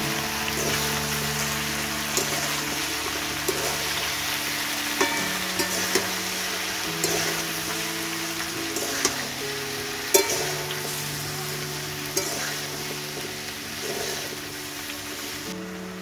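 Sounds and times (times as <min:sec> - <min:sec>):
vegetables sizzling in a pan: 0:00.0 - 0:16.0
metal spatula clacking and scraping: 0:05.0 - 0:06.2, 0:06.8 - 0:07.8, 0:10.1 - 0:11.0, 0:12.2 - 0:14.4.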